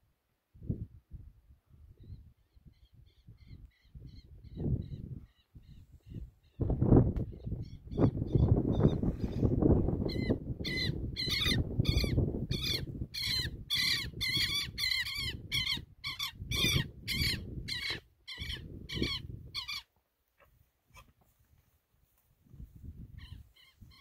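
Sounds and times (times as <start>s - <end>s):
wind rumbling on microphone: 0.5s - 19.8s, 20.4s - 24.0s
bird harsh calls: 10.0s - 19.9s.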